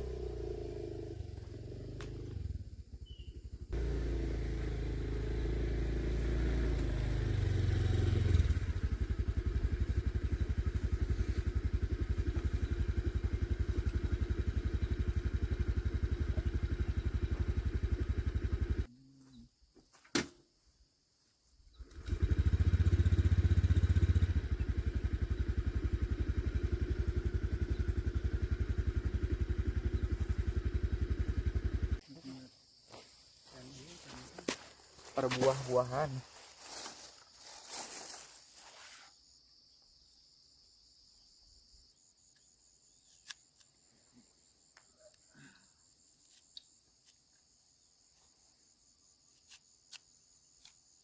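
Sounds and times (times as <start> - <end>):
vehicle engine running: 0.0 - 18.9, 21.8 - 32.4.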